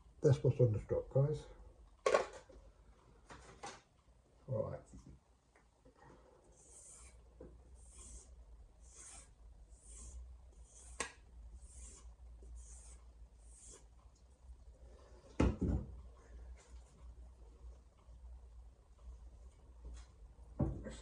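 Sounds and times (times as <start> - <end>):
knock: 15.4 - 15.9.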